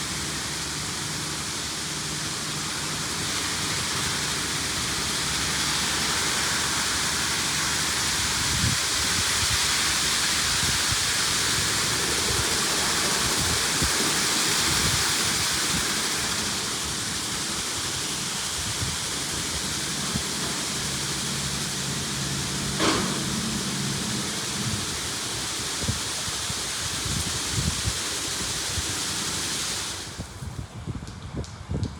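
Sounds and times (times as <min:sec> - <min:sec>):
water spray hissing on car: 0:00.0 - 0:30.7
low hum: 0:16.0 - 0:26.8.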